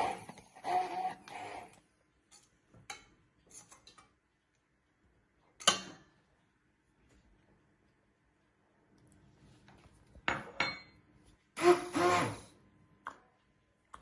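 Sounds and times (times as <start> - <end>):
sharp dish clink: 10.3 - 11.0.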